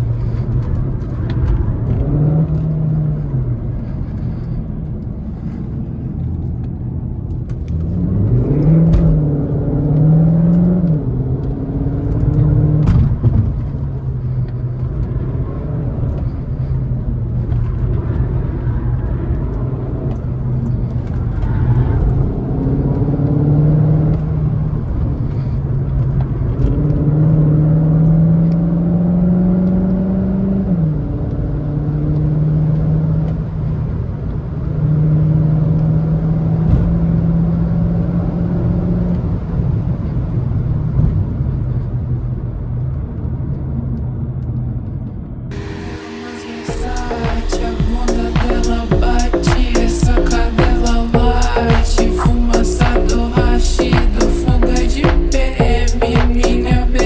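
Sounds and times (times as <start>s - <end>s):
car engine revving: 45.5s - 57.0s.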